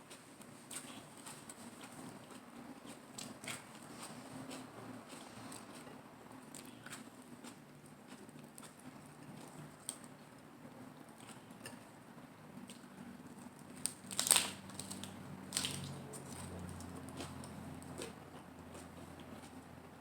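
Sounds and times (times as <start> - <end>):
chewing with mouth clicks: 0.0 - 12.0, 12.6 - 19.6
crunchy bite: 13.7 - 18.2.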